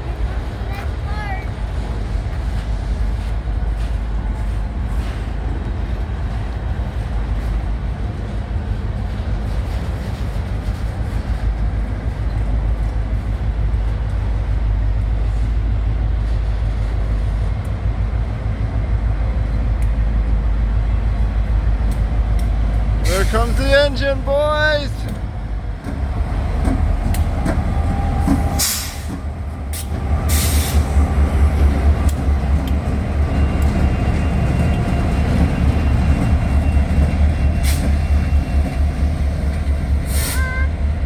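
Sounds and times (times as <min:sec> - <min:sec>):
train cars rolling rumble: 0:00.0 - 0:41.0
faint clicks: 0:19.7 - 0:20.0, 0:32.0 - 0:32.8.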